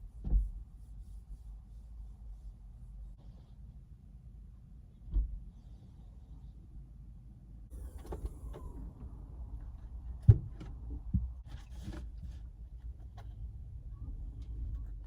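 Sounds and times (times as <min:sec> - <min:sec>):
rustling and knocking of objects: 0:10.1 - 0:13.5.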